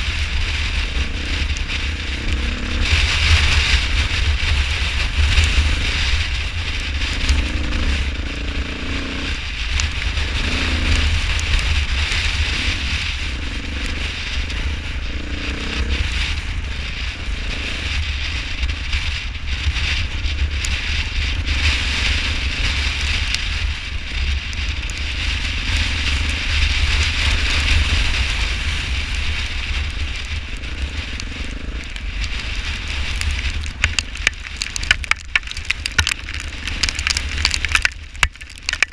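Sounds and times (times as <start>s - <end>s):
hail striking: 0.0s - 38.9s
wind buffeting microphone: 0.0s - 38.9s.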